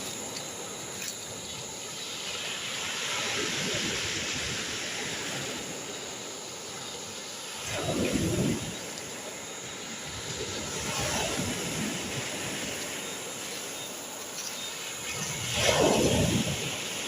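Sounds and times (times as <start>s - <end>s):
rushing river water: 0.0s - 17.0s.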